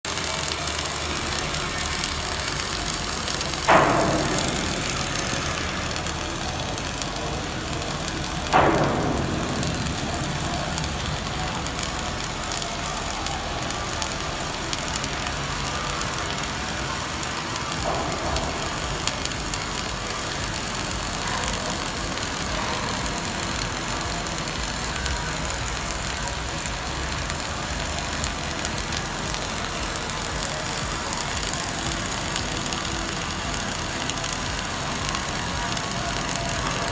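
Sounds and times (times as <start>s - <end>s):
welding arc crackling and hissing: 0.0s - 36.9s
sharp metallic knocks: 1.5s - 14.0s.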